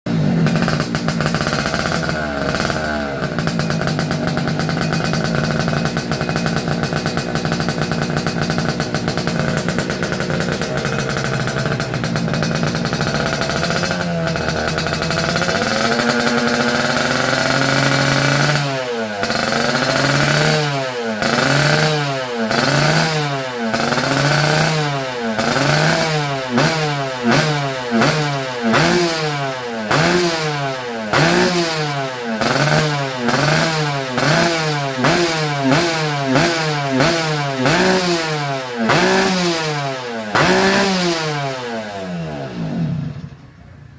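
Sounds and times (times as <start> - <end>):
two-stroke engine idling and revving: 0.0 - 43.9.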